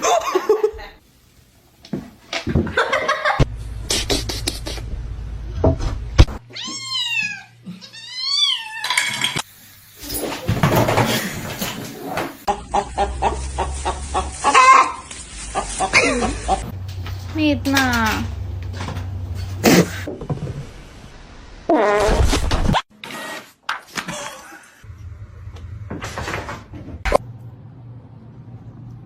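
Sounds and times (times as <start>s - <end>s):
cat meowing: 6.5s - 9.0s.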